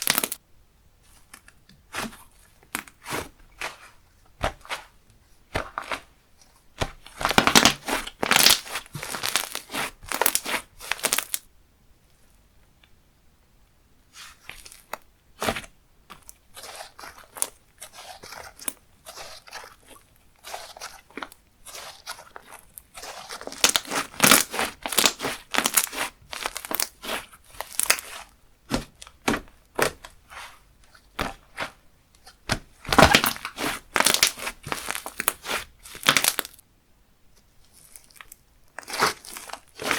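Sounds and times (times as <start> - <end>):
slime squishing and popping: 0.0 - 0.4, 6.8 - 11.4, 14.6 - 30.1, 32.4 - 36.6, 37.9 - 39.9.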